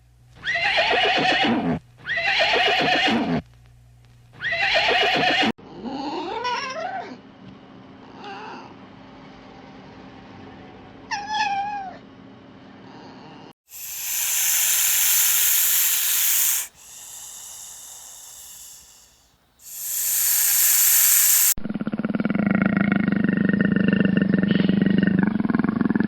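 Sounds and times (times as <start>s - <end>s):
cat hissing: 13.7s - 21.6s.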